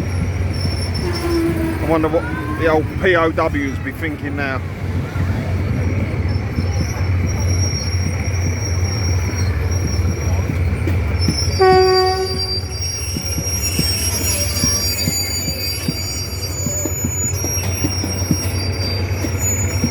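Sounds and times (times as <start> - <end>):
high wheel squeal: 0.0 - 19.9
train rumbling over rails: 0.0 - 19.9
wheel clacks: 0.0 - 19.9
train horn: 1.0 - 1.9, 11.6 - 12.8.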